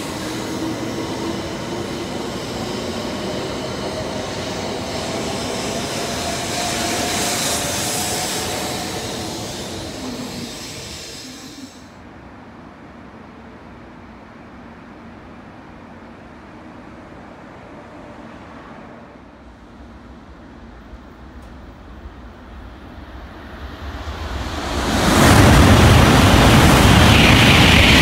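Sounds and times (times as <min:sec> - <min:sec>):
train rushing past: 0:00.0 - 0:12.6, 0:15.8 - 0:28.0.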